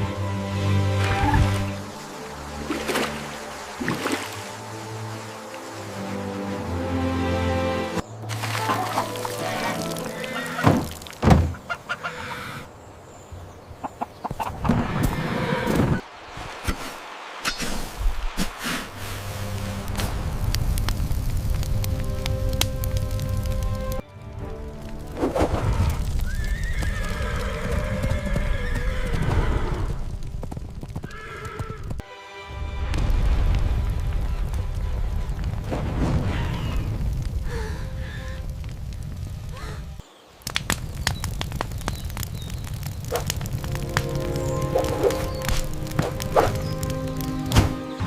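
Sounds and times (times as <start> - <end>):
horse whinnying: 9.4 - 10.8, 14.7 - 16.0, 25.8 - 30.0, 31.0 - 31.9
chickens clucking: 11.4 - 12.7, 13.8 - 15.5
low rumbling noise: 15.9 - 24.0.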